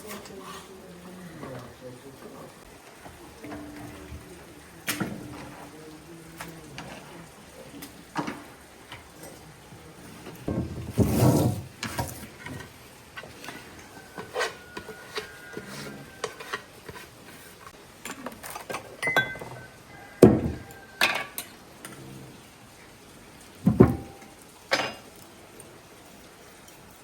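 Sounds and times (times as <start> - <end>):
dishes and utensils clinking: 11.8 - 22.2, 23.6 - 25.2.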